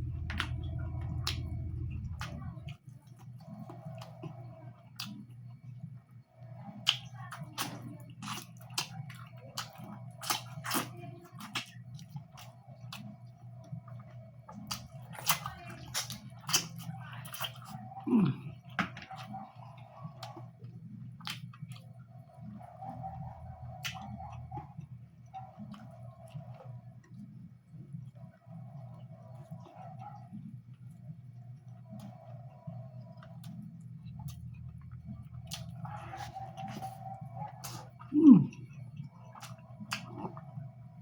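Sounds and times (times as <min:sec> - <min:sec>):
wet chewing: 0:00.0 - 0:05.3, 0:06.8 - 0:27.3, 0:28.1 - 0:40.6
steady low hum: 0:00.0 - 0:06.8, 0:12.2 - 0:41.0
lip smacks and mouth clicks: 0:21.2 - 0:21.9, 0:33.1 - 0:40.5.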